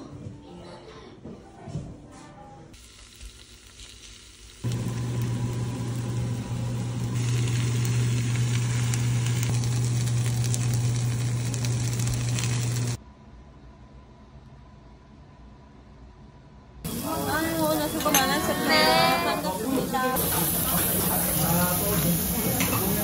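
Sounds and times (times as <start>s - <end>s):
potato pancakes sizzling in pan: 2.8s - 13.0s, 16.9s - 23.0s
steady low hum: 4.6s - 18.3s.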